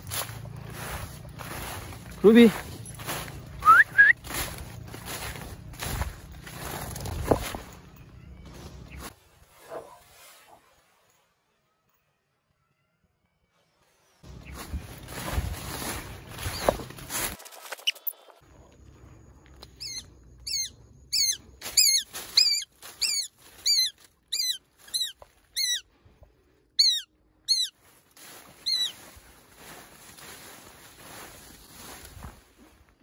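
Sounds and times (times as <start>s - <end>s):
rustling through undergrowth: 0.0s - 10.9s, 14.2s - 19.0s, 21.2s - 26.4s, 27.7s - 33.0s
bird giving sharp down-slurred calls: 19.8s - 25.8s, 26.8s - 27.7s.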